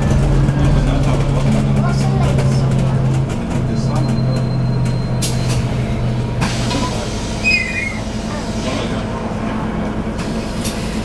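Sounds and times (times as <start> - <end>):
bus engine running: 0.0 - 11.0
brief high squeak: 7.4 - 8.1.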